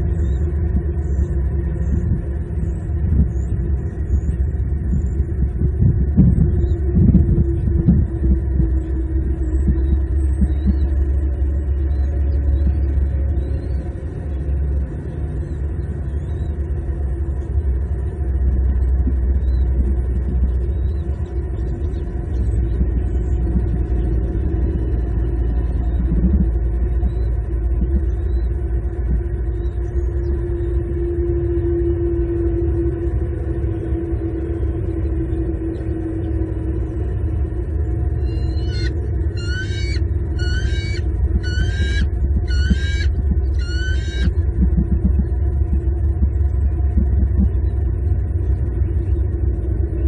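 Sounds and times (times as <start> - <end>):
droning hum: 0.0 - 50.0
low outdoor rumble: 0.0 - 50.0
small birds chirping: 38.2 - 44.4.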